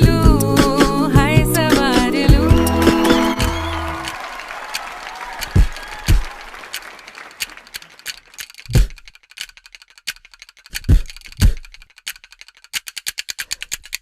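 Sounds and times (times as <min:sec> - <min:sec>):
sharp dry percussion clicks: 0:05.4 - 0:14.0.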